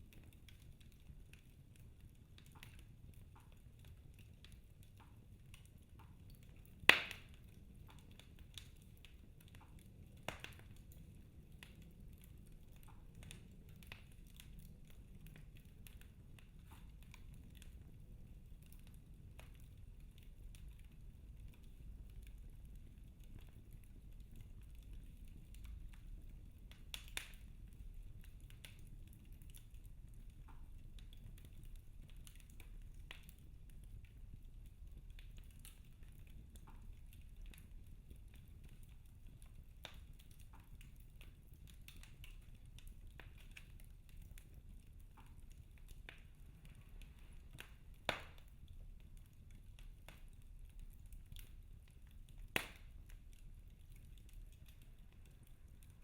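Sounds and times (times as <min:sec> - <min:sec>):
logs crackling in fireplace: 0:00.0 - 0:56.0
low rumble of flames: 0:00.0 - 0:56.0
small pops: 0:45.1 - 0:48.5, 0:52.3 - 0:53.2
sharp wood snaps: 0:52.6 - 0:52.9.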